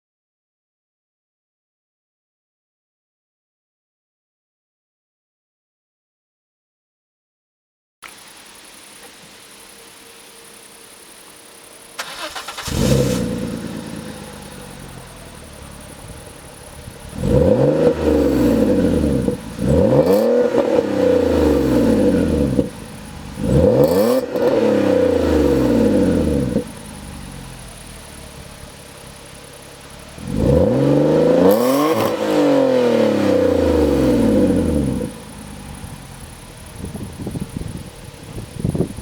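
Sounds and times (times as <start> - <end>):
car engine revving: 11.9 - 39.0.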